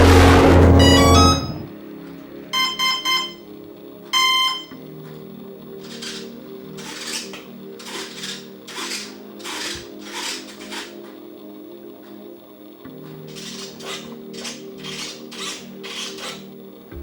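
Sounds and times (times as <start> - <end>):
electronic beeps: 0.4 - 1.7, 2.6 - 3.4, 4.1 - 4.8.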